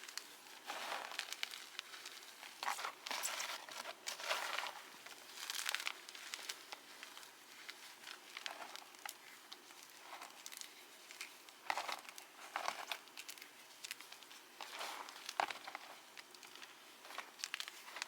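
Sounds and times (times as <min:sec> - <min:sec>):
chalk crunching and crumbling: 0:00.0 - 0:18.0.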